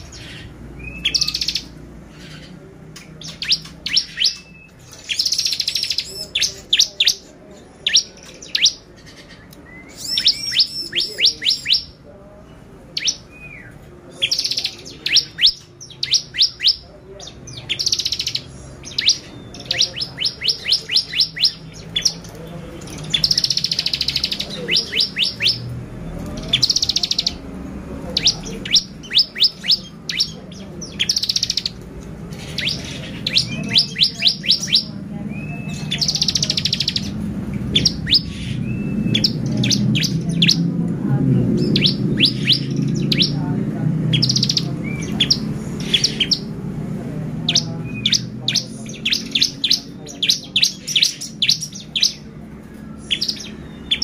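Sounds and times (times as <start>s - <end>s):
bird chirping and trilling: 0.0s - 54.0s.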